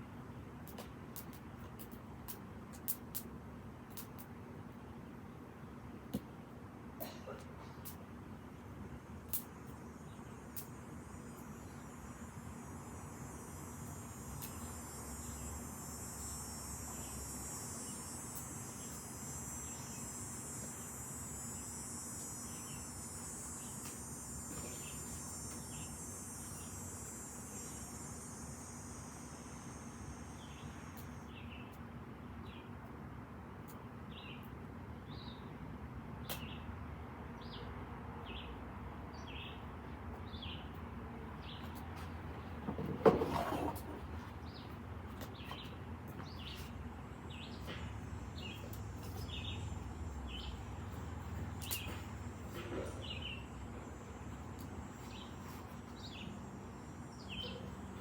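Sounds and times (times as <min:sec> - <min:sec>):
insects buzzing: 0:07.0 - 0:32.7, 0:38.2 - 0:58.0.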